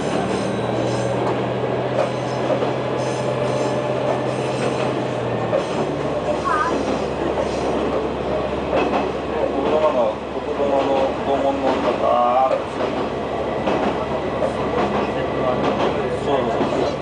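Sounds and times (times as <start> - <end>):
wheel and rail rumble: 0.0 - 17.0.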